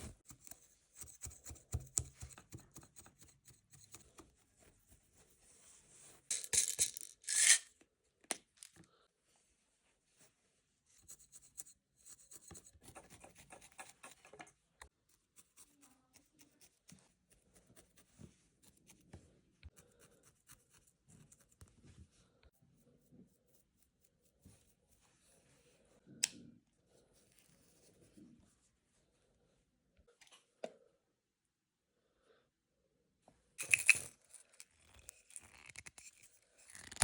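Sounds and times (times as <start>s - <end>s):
felting needle poking wool: 0.0s - 5.3s, 10.9s - 25.2s.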